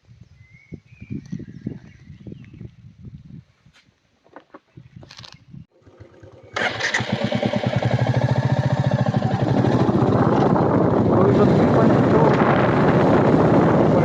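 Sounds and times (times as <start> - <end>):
motorcycle engine starting and idling: 5.7 - 14.0.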